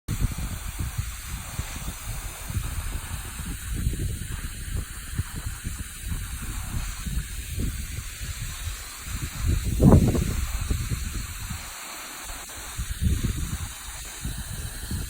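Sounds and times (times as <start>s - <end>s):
wind buffeting microphone: 0.1s - 15.0s
waterfall rushing: 8.2s - 14.4s.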